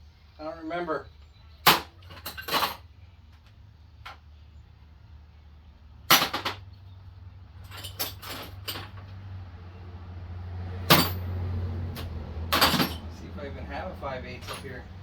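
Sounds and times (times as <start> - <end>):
hand tools clanking: 10.8 - 11.3, 11.9 - 13.2, 14.4 - 14.9.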